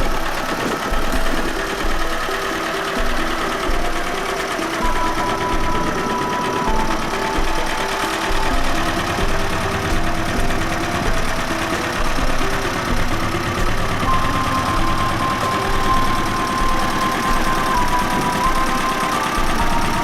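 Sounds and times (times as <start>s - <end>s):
tractor engine idling: 0.0s - 20.0s.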